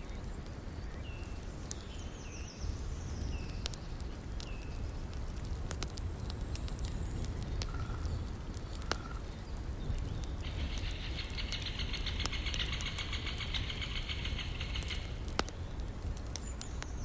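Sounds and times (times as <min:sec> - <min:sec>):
campfire crackling and popping: 0:00.0 - 0:17.0
bird chirping: 0:09.2 - 0:15.2.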